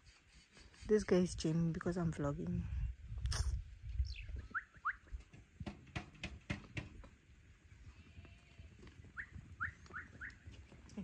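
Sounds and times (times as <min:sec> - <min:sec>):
calves knocking and thumping: 0:05.2 - 0:07.2.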